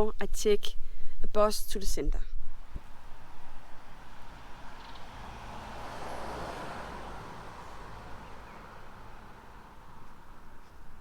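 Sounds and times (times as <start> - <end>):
vehicle passing by: 2.8 - 11.0.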